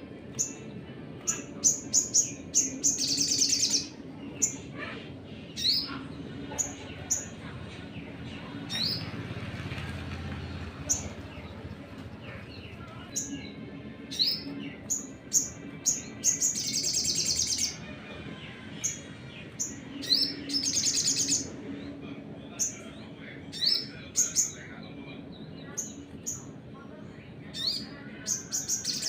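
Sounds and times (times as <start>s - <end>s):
bird chirping and trilling: 1.2s - 7.3s, 18.8s - 21.5s.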